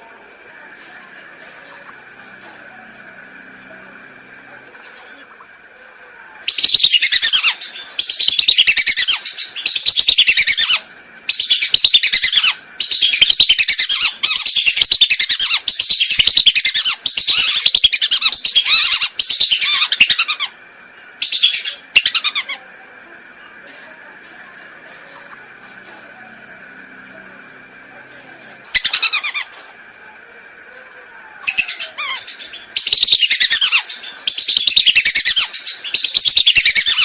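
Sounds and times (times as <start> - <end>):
faint steady hum: 0.0 - 37.0
whistling ducks calling: 6.5 - 20.6, 21.2 - 22.6, 28.7 - 29.6, 31.4 - 37.0.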